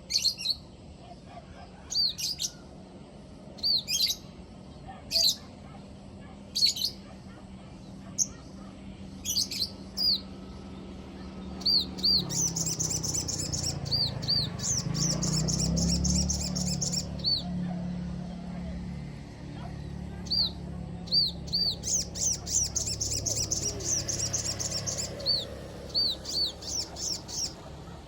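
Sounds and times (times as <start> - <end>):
bird singing high chirps: 0.0 - 0.7, 3.6 - 4.3, 6.6 - 7.0, 9.2 - 17.6, 20.1 - 28.0.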